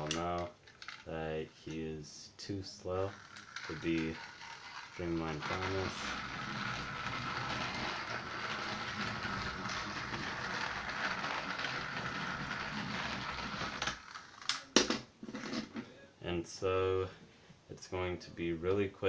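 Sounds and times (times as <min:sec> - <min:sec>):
toy train motor whirring: 0:03.0 - 0:14.6.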